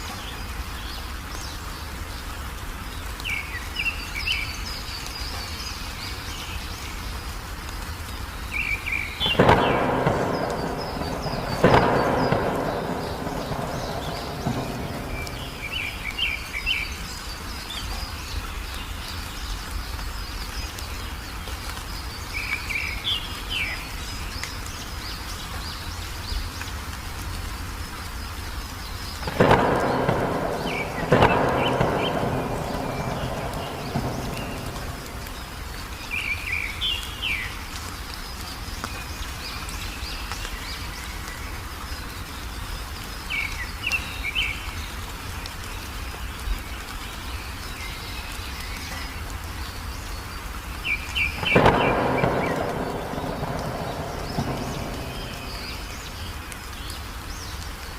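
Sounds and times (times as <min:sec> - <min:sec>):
steady rain: 0:00.0 - 0:57.9
bird chirping: 0:08.4 - 0:21.2, 0:28.9 - 0:37.6, 0:50.1 - 0:57.6
thunder claps: 0:09.1 - 0:17.2, 0:29.2 - 0:37.4, 0:51.2 - 0:56.8.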